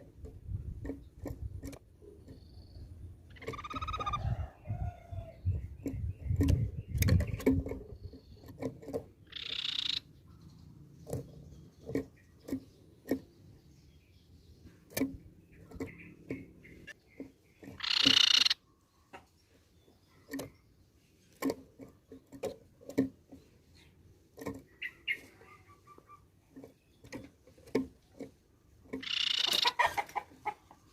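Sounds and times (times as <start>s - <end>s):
bird harsh rasping chatters: 1.4s - 4.2s, 9.2s - 10.5s, 15.5s - 18.6s, 24.7s - 26.2s, 29.0s - 30.6s.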